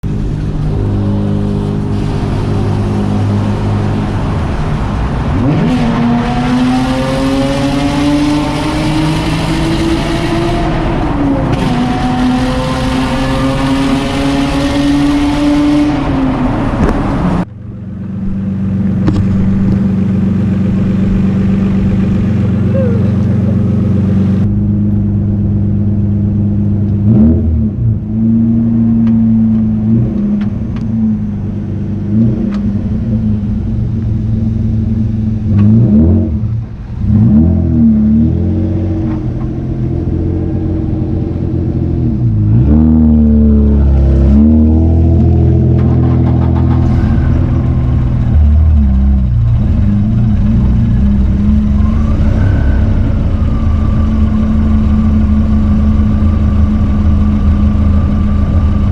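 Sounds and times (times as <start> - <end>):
car engine revving: 0.0 - 58.9.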